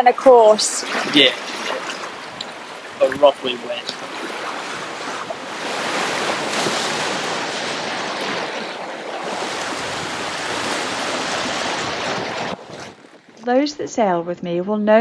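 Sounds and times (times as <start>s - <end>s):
sea rushing along a hull: 0.0s - 13.2s
wind buffeting microphone: 0.3s - 13.9s.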